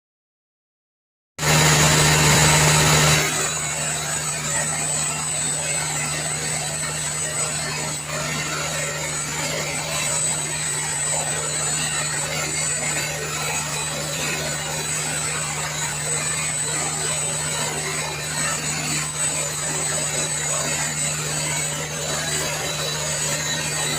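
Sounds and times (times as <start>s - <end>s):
low hum: 1.4s - 23.9s.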